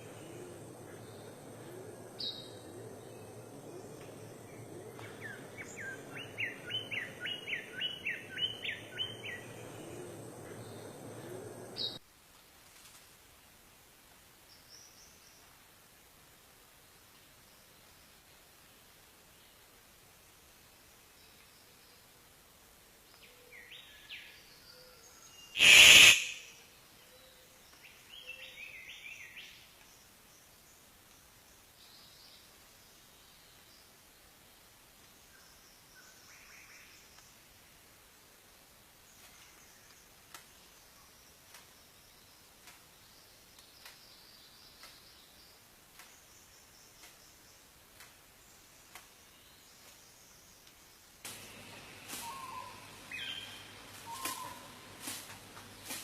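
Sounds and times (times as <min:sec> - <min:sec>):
bird chirping: 0:00.0 - 0:12.0, 0:51.5 - 0:54.8
steady background hiss: 0:00.0 - 0:56.0
bird calls with gliding notes: 0:25.6 - 0:26.4, 0:52.2 - 0:54.7
short high bird note: 0:25.6 - 0:26.5
loud harsh bird call: 0:25.6 - 0:26.6, 0:52.2 - 0:54.7.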